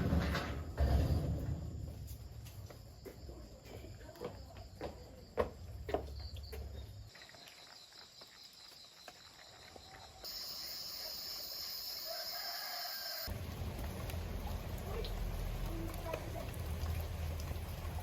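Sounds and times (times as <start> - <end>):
rooster crowing: 11.7 - 13.3.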